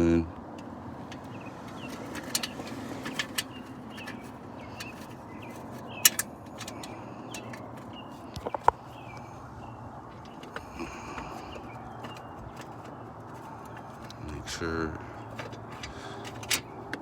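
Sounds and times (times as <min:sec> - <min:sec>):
plastic trim and screws clicking: 0:01.8 - 0:07.7.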